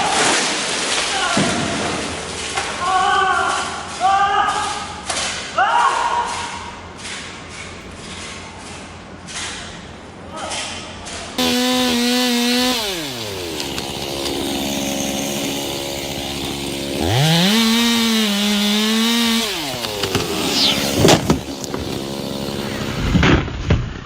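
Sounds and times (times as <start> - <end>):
chainsaw engine revving: 11.4 - 23.2.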